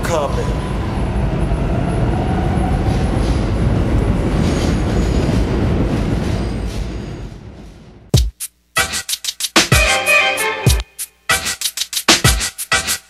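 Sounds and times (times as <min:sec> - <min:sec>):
subway train wheels on track: 0:00.0 - 0:08.1.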